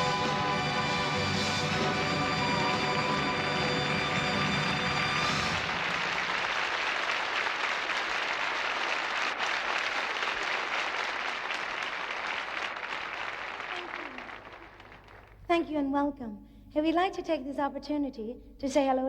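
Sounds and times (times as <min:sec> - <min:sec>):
audience applauding: 0:00.0 - 0:15.5.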